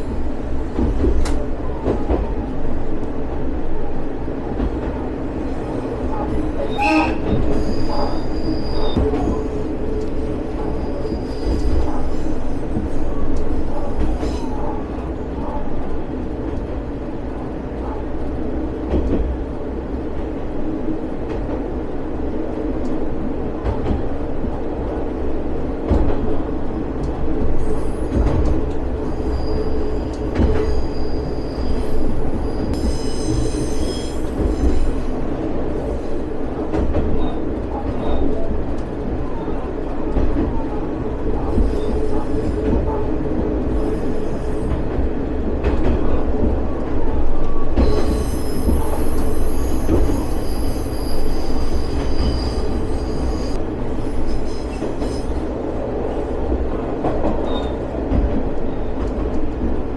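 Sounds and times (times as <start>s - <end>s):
railcar engine and wheels rumbling: 0.0s - 59.9s
high-pitched wheel squeals: 5.6s - 9.2s, 29.1s - 35.0s, 47.8s - 53.6s.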